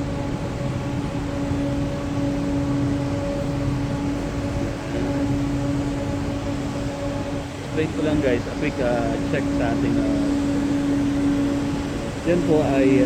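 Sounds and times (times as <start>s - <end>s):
machinery humming tones: 0.0s - 13.0s
machinery rushing noise: 4.0s - 13.0s.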